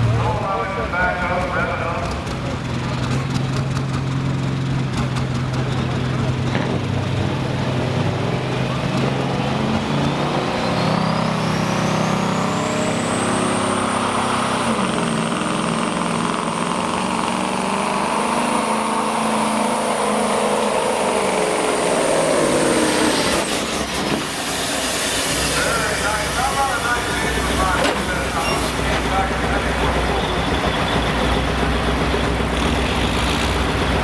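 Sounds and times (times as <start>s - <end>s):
diesel truck engine under load: 0.0s - 34.0s
high turbo whine: 0.0s - 34.0s.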